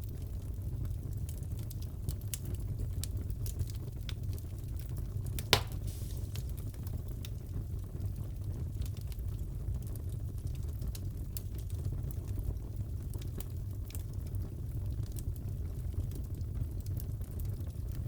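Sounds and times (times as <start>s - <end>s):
wood fire crackling and popping: 0.0s - 18.0s
loud fire pop: 5.4s - 6.8s.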